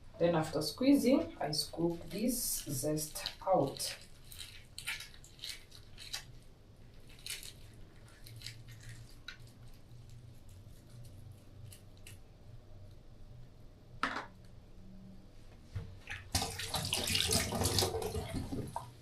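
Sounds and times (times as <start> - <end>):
low steady hum: 0.0 - 19.0
wet squishing and scraping pulp: 1.1 - 12.2.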